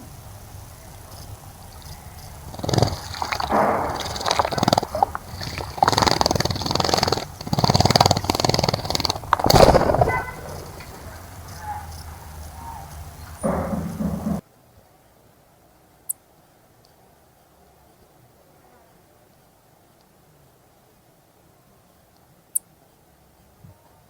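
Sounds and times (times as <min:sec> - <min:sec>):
bird splashing in water: 0:00.0 - 0:14.1.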